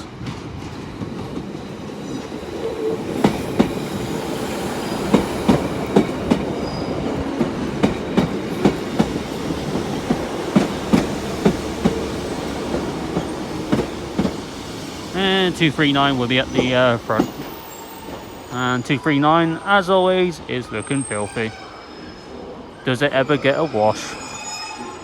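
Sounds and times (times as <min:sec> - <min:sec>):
train low rumble: 0:00.0 - 0:23.2
train wheels clicking over rail joints: 0:00.1 - 0:18.2.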